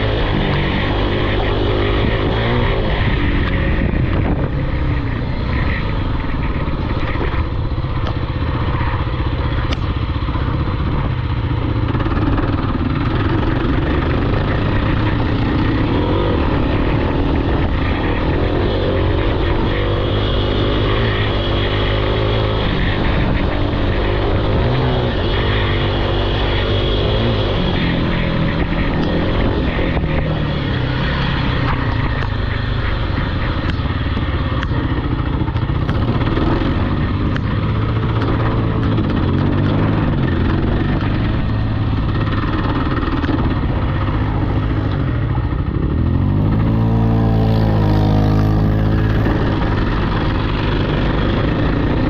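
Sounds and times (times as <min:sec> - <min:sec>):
off-road vehicle engine revving: 0:00.0 - 0:52.0.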